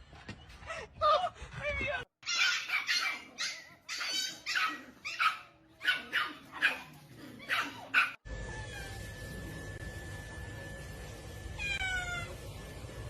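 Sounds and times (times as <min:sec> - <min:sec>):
dog yipping and whining: 0:02.2 - 0:09.1.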